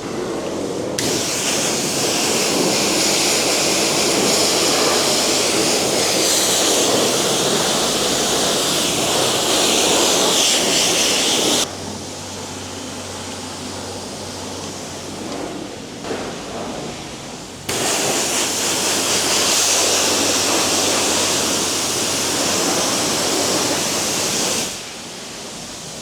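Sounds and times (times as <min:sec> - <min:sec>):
high-pressure water spray hissing: 0:00.2 - 0:11.7, 0:17.6 - 0:26.0.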